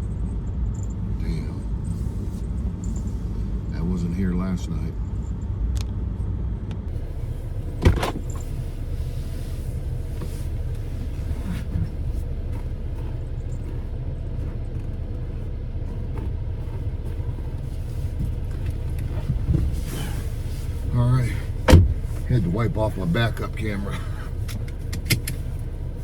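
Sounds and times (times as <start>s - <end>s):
vehicle engine rumbling: 0.0s - 26.0s
sharp thump: 21.6s - 22.1s.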